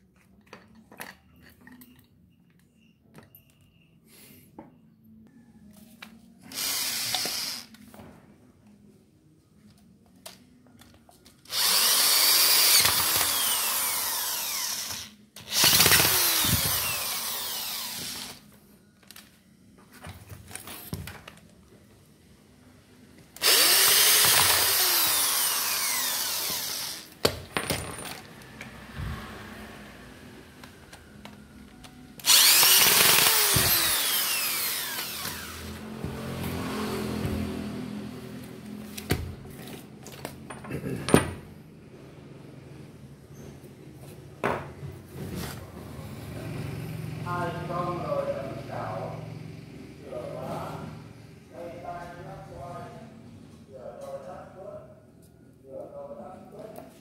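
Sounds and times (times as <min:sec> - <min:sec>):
electric power tool motor: 0:06.5 - 0:07.8, 0:11.5 - 0:18.5, 0:23.4 - 0:27.2, 0:32.2 - 0:37.2.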